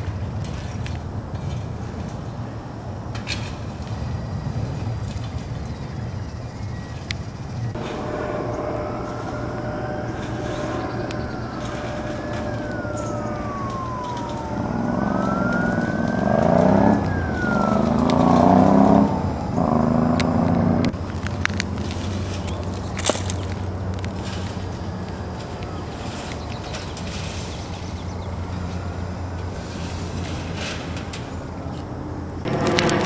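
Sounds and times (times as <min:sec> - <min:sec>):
siren wailing: 0:07.7 - 0:21.0
multi-tone horn blast: 0:07.8 - 0:20.9.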